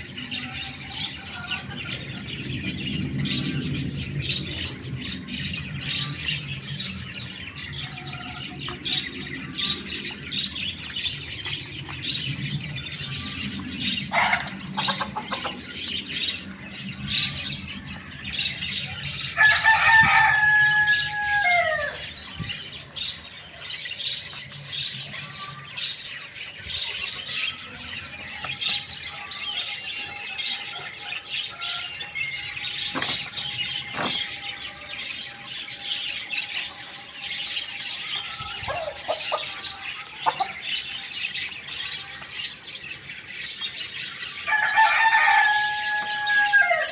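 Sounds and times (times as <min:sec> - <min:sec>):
small birds chirping: 0:00.0 - 0:46.9
rooster crowing: 0:19.4 - 0:22.2, 0:44.5 - 0:46.9.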